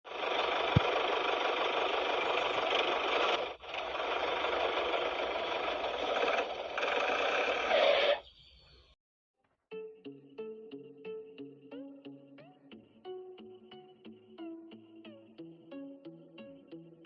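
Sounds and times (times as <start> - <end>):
small electric motor whirring: 0.2 - 8.2.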